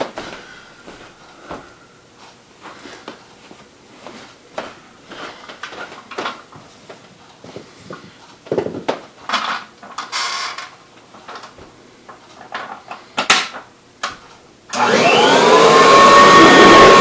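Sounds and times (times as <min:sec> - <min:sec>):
hard objects knocking and clattering: 0:08.5 - 0:13.6.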